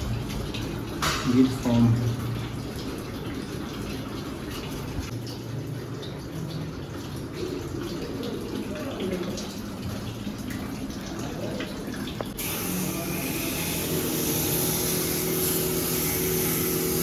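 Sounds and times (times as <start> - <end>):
water splashing and dripping: 0.0 - 17.0
pressure pump motor hum: 12.2 - 17.0
hiss of spraying water: 12.4 - 17.0.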